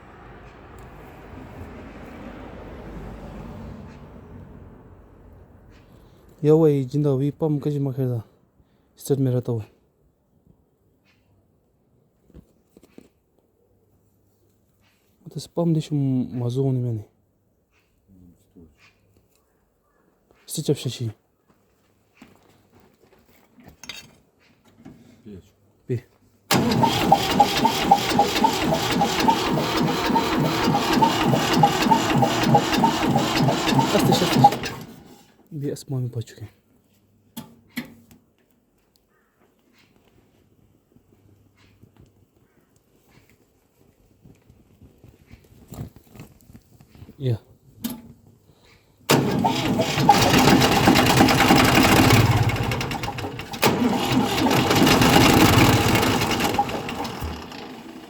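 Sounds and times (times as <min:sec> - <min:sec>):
engine starting and idling: 0:26.5 - 0:35.4, 0:49.1 - 0:58.0.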